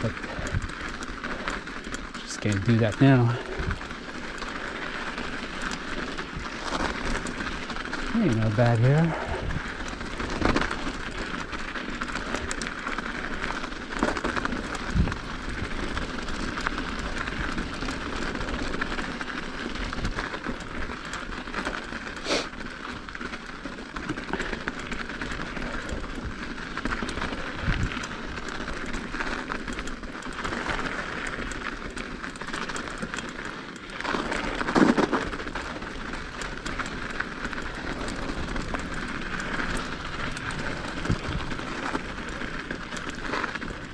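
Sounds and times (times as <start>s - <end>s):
bike tyres rolling on snow: 0.0s - 43.9s.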